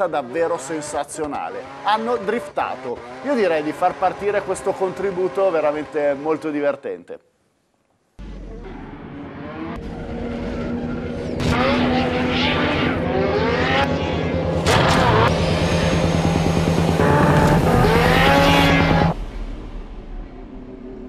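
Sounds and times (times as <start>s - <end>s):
car engine revving: 0.0s - 6.4s, 8.2s - 21.0s
background music: 13.0s - 21.0s.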